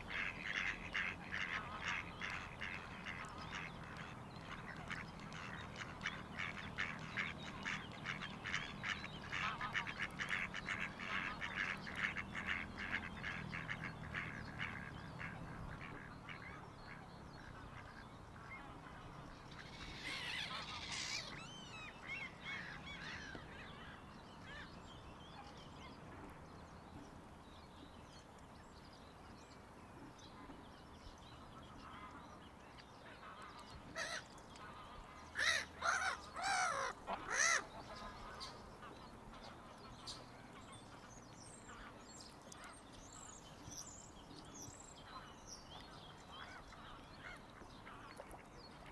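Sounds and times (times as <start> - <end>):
waterfowl calling: 34.8 - 38.7
higher wavering bird calls: 35.4 - 38.6.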